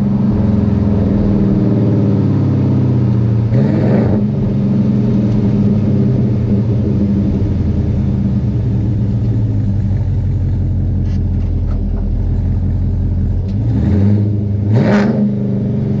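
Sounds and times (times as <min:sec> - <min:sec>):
engine revving: 0:00.0 - 0:16.0
truck engine idling: 0:04.2 - 0:13.7.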